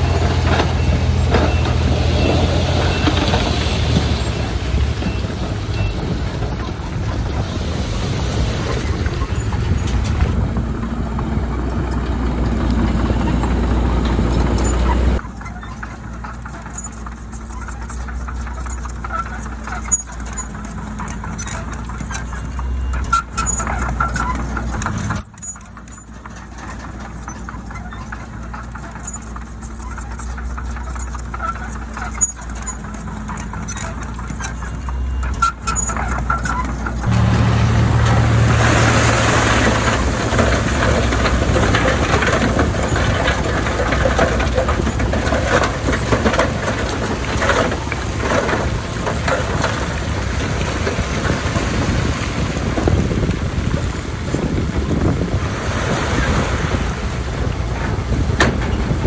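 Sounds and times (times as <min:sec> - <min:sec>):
heavy diesel engine running: 0:00.0 - 0:59.0
machine clattering: 0:25.9 - 0:52.0.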